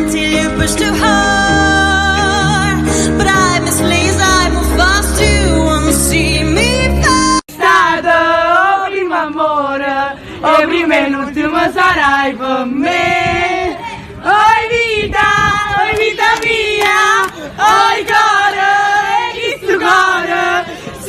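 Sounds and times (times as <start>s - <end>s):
woman singing pop song: 0.0s - 14.4s
crowd singing along: 0.0s - 21.0s.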